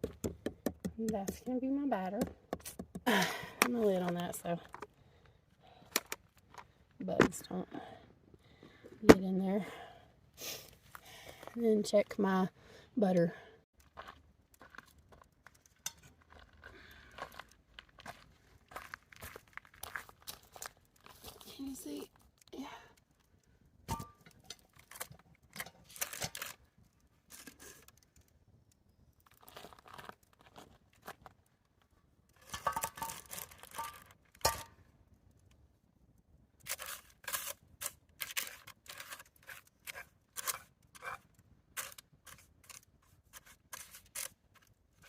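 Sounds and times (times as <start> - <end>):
rustling and scraping cooking gear: 13.8 - 22.0, 23.9 - 28.2, 32.3 - 34.7, 36.6 - 45.0.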